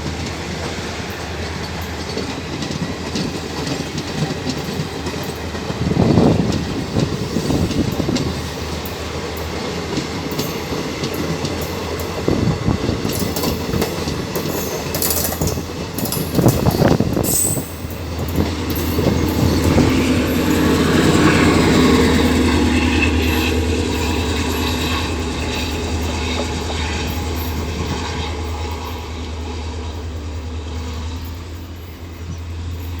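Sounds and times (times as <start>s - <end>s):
train hum: 0.0s - 33.0s
wheels clattering over rail joints: 0.0s - 33.0s.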